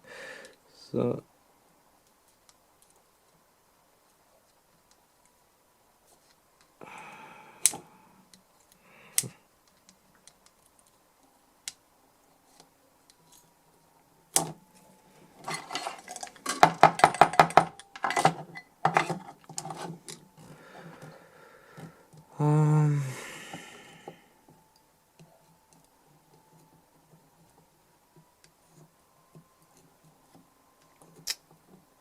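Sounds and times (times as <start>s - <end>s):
metal tools clinking on metal: 15.4s - 20.2s.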